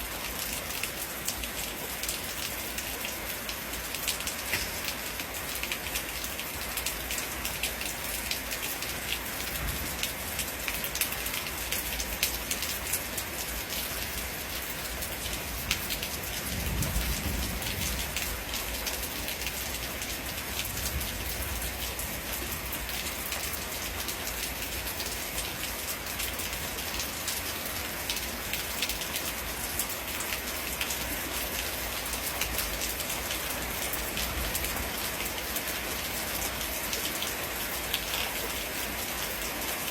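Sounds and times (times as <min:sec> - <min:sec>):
steady rain falling: 0:00.0 - 0:39.9
distant thunder rumble: 0:16.5 - 0:18.2.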